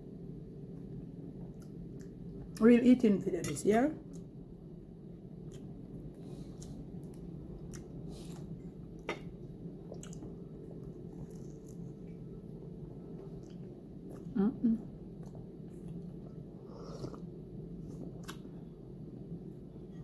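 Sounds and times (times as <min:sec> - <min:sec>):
low room hum: 0:00.0 - 0:20.0
person chewing: 0:05.4 - 0:12.3, 0:15.1 - 0:18.5.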